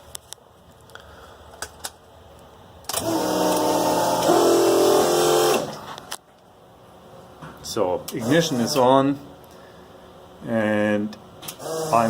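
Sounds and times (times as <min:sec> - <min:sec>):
electric pump motor whine: 0:02.9 - 0:06.0, 0:08.1 - 0:09.0, 0:11.6 - 0:12.0.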